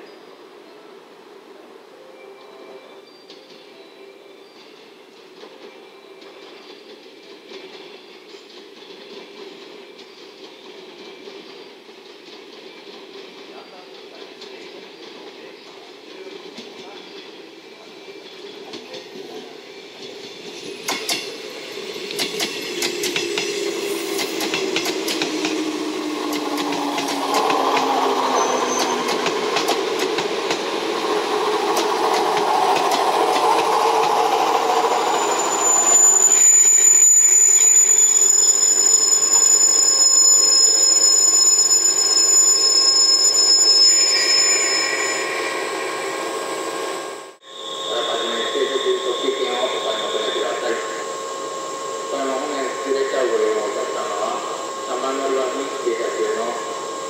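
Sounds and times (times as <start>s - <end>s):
electric train hum: 0.0s - 57.0s
rumble of passing train cars: 0.0s - 57.0s
train brakes squealing: 1.9s - 57.0s
train wheels clicking over rail joints: 20.0s - 21.4s, 22.0s - 35.3s.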